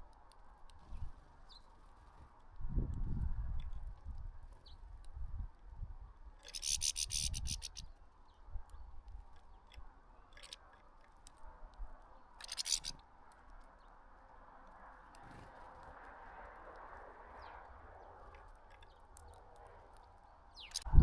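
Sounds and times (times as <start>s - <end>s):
birds rustling and pecking: 6.3s - 13.8s, 17.6s - 20.9s
bursts of rapid wing strokes: 6.5s - 7.8s, 12.4s - 13.0s.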